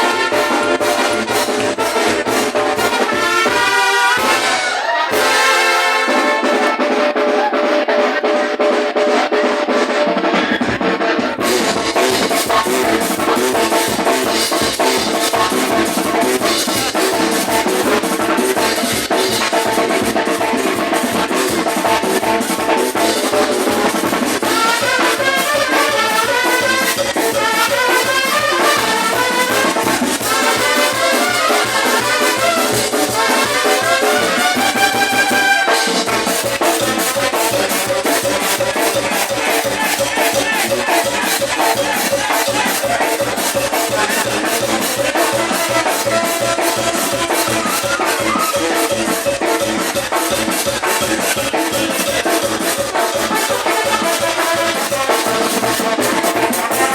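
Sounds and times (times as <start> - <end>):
brass band playing: 0.0 - 56.9
drum beat: 0.0 - 56.9.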